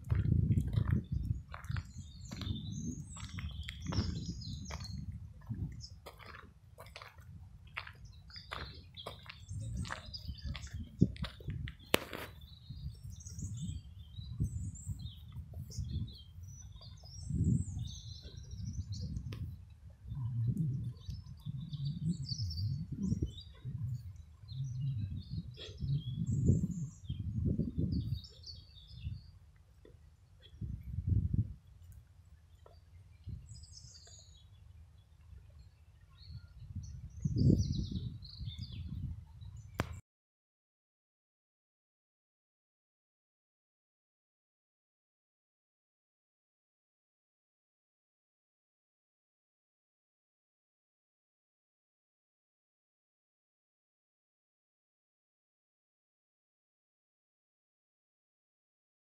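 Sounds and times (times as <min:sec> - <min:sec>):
low rumble on microphone: 0:00.0 - 0:40.0
small birds chirping: 0:00.0 - 0:40.0.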